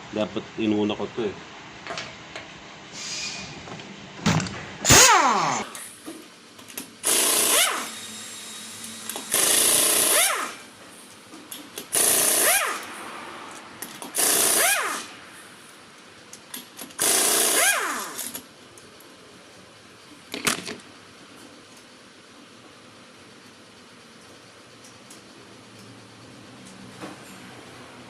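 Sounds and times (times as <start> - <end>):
impact wrench rising whine: 4.8 - 6.0, 7.0 - 10.8, 11.8 - 15.7, 16.8 - 18.4
impact wrench hammering: 9.0 - 10.6, 11.8 - 13.0, 13.9 - 15.1, 17.0 - 18.4.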